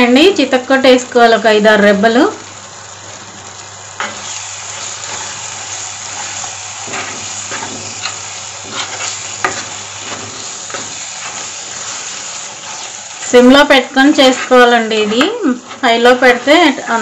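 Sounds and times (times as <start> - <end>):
leaves and garlic sizzling in oil: 0.0 - 17.0
spoon stirring and scraping pan: 3.9 - 16.8.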